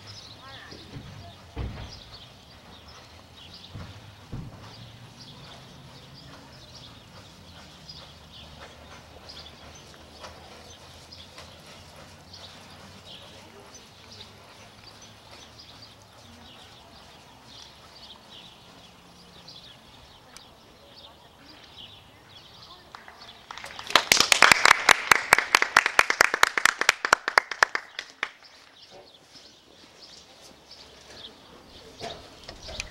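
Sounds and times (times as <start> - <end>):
horse hooves thudding: 0.0 - 20.6
birds chirping: 0.0 - 24.0, 27.6 - 32.9
people clapping: 22.7 - 28.7.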